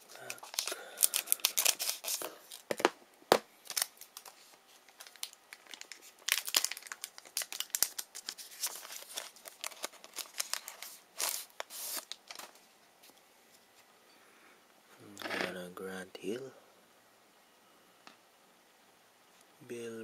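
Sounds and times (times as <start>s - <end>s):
card pack wrapper tearing: 0.0s - 2.9s, 3.6s - 12.6s.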